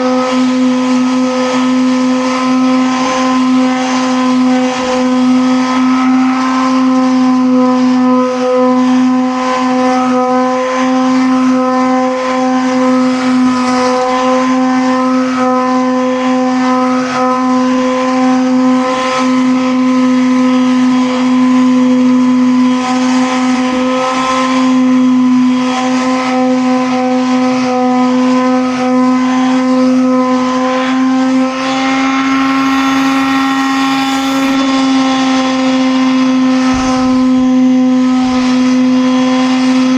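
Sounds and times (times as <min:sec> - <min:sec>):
motor humming: 0:31.6 - 0:35.2.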